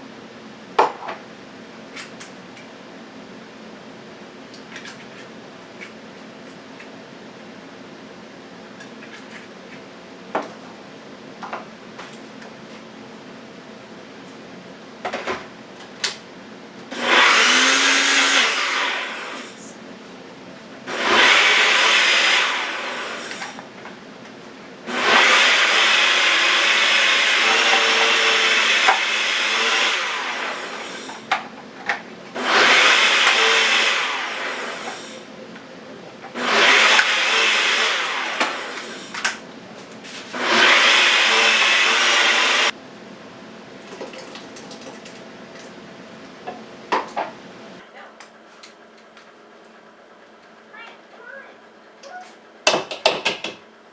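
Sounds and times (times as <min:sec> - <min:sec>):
electric blender pureeing: 0:16.9 - 0:19.8, 0:20.8 - 0:23.8, 0:24.8 - 0:31.4, 0:32.3 - 0:35.3, 0:36.3 - 0:39.4, 0:40.3 - 0:42.8.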